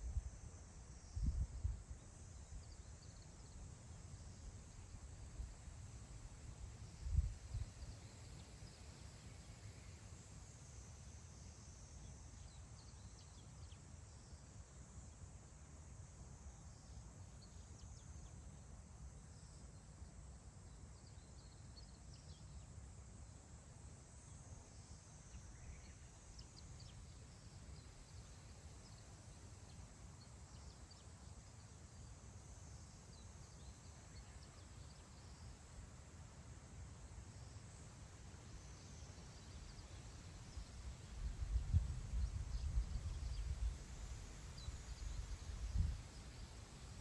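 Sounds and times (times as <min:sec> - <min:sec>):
faint wind over grassland: 0:00.0 - 0:47.0.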